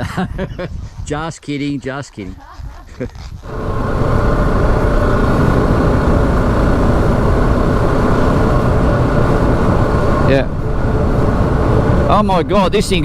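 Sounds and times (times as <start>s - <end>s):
motorcycle engine running: 3.5s - 13.0s.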